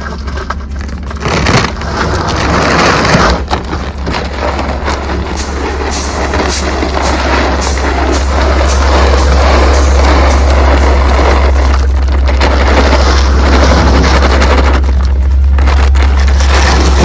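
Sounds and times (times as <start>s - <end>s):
low rumble: 0.0s - 17.0s
corn kernels pouring rattle: 1.0s - 17.0s
rhythmic swishes: 4.3s - 17.0s.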